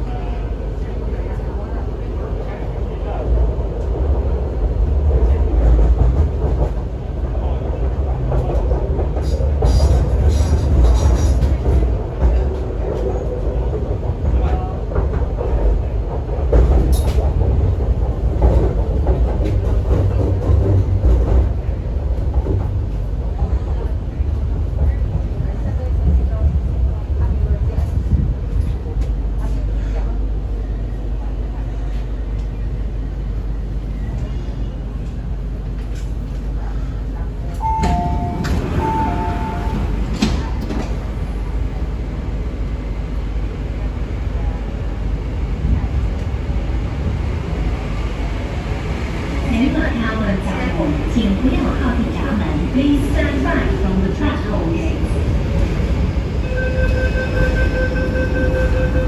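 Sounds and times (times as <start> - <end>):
train running low rumble: 0.0 - 59.0.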